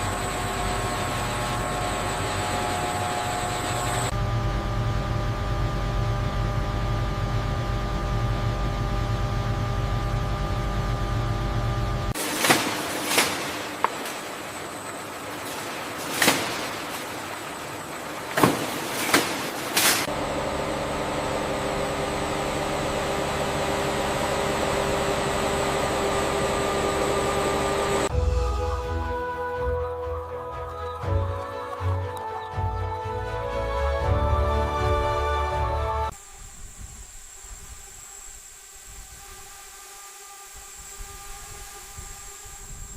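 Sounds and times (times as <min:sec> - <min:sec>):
machinery hum: 0:00.0 - 0:42.9
noisy hiss: 0:12.1 - 0:25.2, 0:36.1 - 0:42.9.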